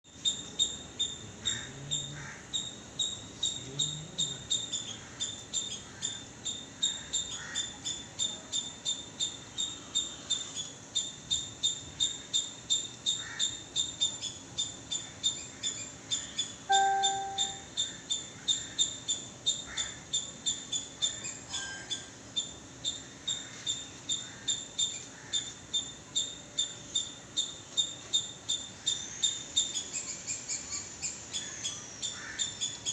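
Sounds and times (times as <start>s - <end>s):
insects chirping: 0.1s - 21.2s.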